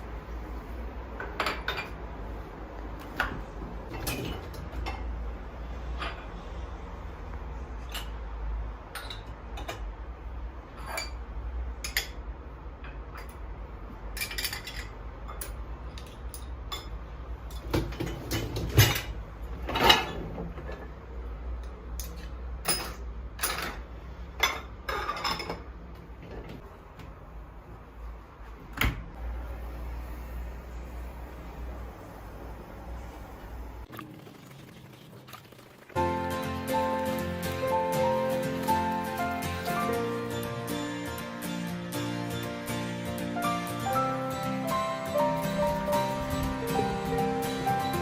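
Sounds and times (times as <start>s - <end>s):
dishes and cutlery clinking: 1.2s - 2.1s, 3.2s - 5.2s, 8.9s - 10.0s, 10.7s - 13.5s, 14.1s - 21.0s, 21.6s - 26.6s.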